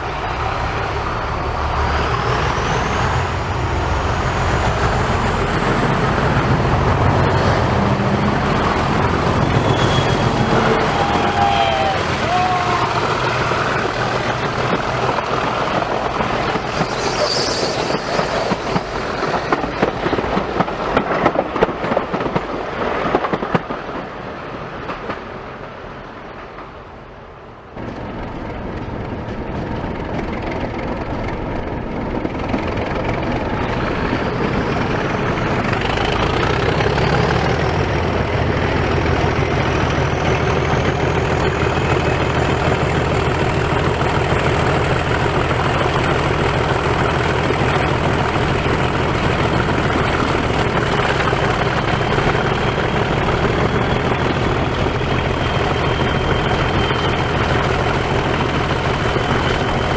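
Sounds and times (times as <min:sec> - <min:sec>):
diesel locomotive engine rumbling: 0:00.0 - 0:59.9
turbocharger whistle: 0:09.4 - 0:13.9, 0:16.5 - 0:18.8.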